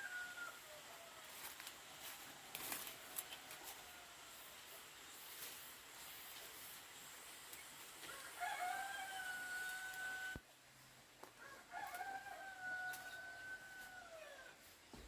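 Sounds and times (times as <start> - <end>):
rooster crowing: 8.1 - 10.4, 11.4 - 14.6.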